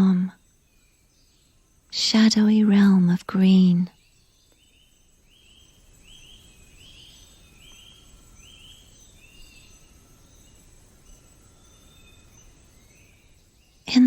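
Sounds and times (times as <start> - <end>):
high-pitched insect drone: 3.9 - 13.8.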